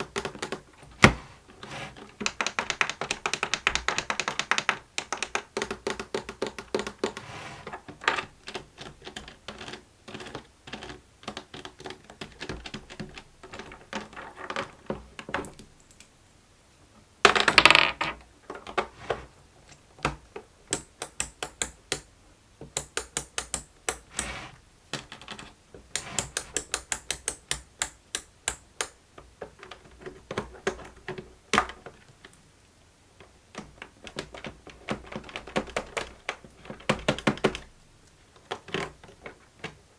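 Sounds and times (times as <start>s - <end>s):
toy buttons clicking: 20.7s - 22.1s, 26.0s - 29.0s.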